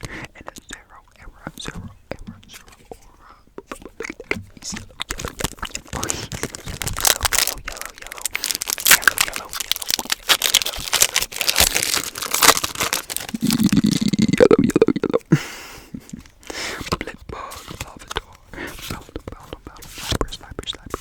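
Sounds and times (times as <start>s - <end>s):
foil wrapper crinkling: 4.6s - 14.2s.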